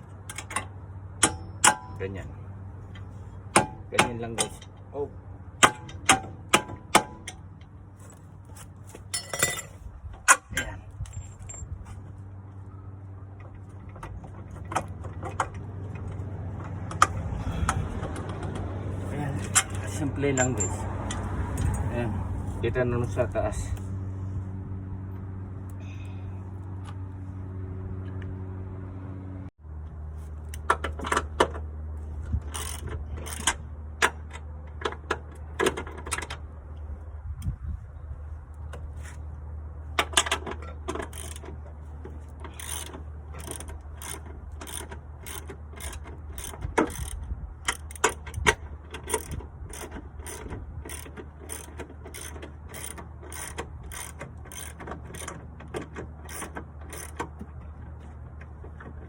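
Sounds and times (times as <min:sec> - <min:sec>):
ratchet wrench clicking: 0:32.4 - 0:34.9, 0:40.0 - 0:41.5, 0:42.4 - 0:57.3.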